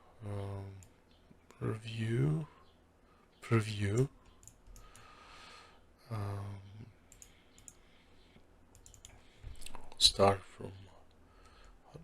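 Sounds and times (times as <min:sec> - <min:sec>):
computer mouse clicks: 0:04.0 - 0:05.1, 0:07.1 - 0:07.8, 0:08.7 - 0:10.0
person breathing: 0:04.7 - 0:05.9, 0:11.2 - 0:11.9.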